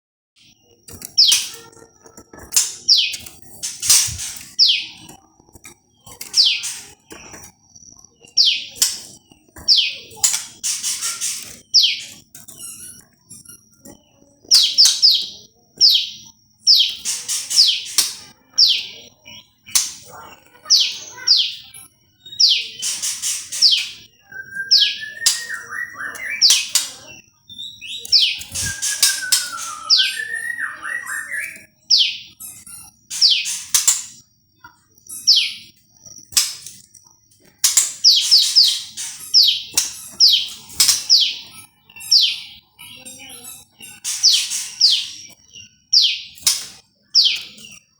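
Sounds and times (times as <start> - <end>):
bird calling sharp high notes: 19.7 - 32.3
lower sliding whistles: 28.4 - 31.5.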